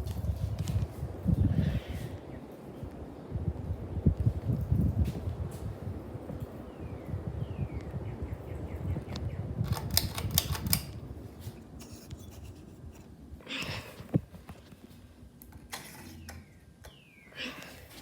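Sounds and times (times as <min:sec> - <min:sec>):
ceiling fan rumble: 0:00.0 - 0:18.0
sharp clicks: 0:09.1 - 0:11.0.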